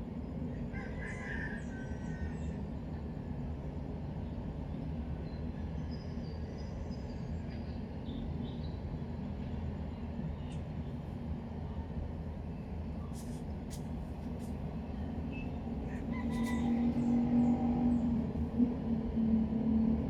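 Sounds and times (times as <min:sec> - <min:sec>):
engine hum: 0:13.2 - 0:20.0
passing vehicle rumble: 0:15.6 - 0:20.0.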